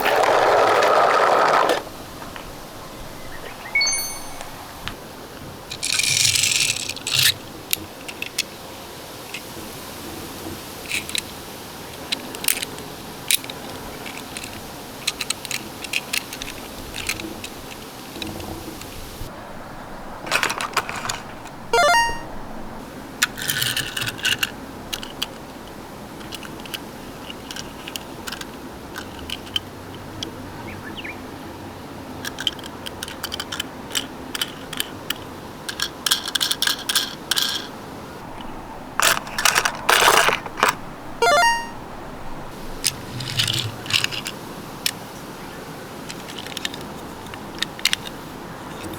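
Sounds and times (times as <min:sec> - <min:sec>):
toy cars clicking and rattling: 0:00.0 - 0:01.8, 0:05.7 - 0:09.6, 0:10.8 - 0:19.1, 0:20.3 - 0:22.2, 0:23.2 - 0:30.5, 0:32.1 - 0:37.8, 0:38.4 - 0:41.7, 0:42.6 - 0:45.1, 0:46.0 - 0:48.9.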